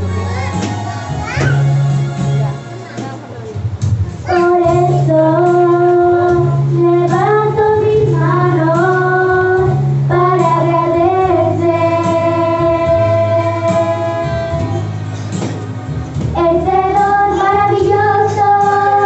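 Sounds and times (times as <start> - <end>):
instrumental accompaniment: 0.0 - 19.0
people singing worship song: 4.5 - 15.4, 16.2 - 19.0.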